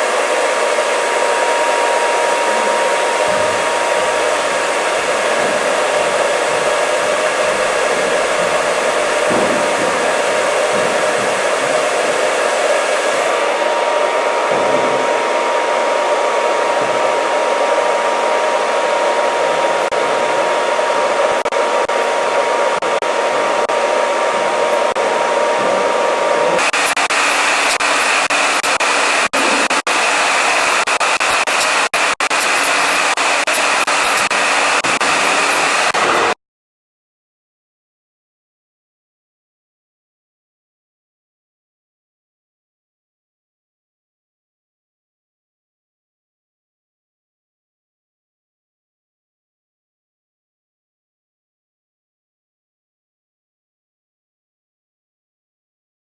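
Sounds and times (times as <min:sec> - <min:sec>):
hair dryer running: 0:00.0 - 0:36.4
thin whine: 0:00.0 - 0:36.4.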